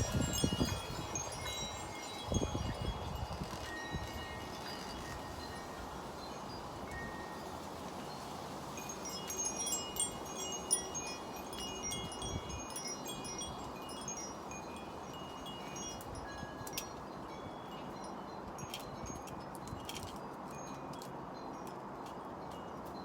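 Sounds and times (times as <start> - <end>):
wind hissing: 0.0 - 16.3
wind chimes tinkling: 0.0 - 23.0.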